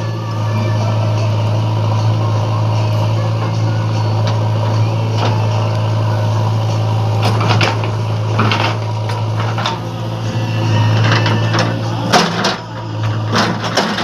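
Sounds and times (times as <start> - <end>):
tractor engine running: 0.0 - 14.0
noisy rattles: 3.3 - 14.0.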